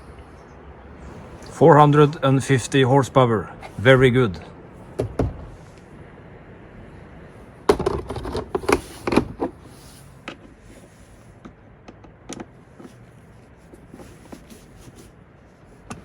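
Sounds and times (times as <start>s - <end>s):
handling knocks and rattles: 4.8s - 5.6s, 7.7s - 10.6s.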